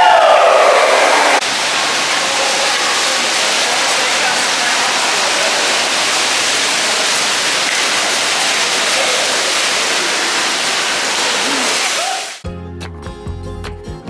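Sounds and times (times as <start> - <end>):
splashing water: 0.6 - 12.4
music: 12.4 - 14.0.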